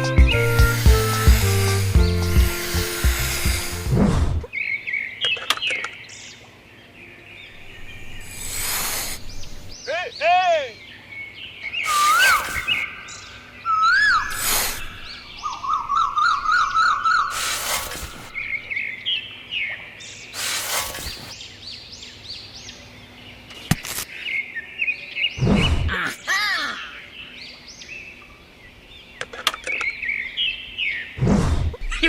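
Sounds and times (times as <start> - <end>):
birds chirping and singing: 0.0 - 3.8, 4.5 - 31.2
short loud noise bursts: 11.8 - 13.0, 14.3 - 15.0, 17.3 - 18.5, 20.4 - 21.4.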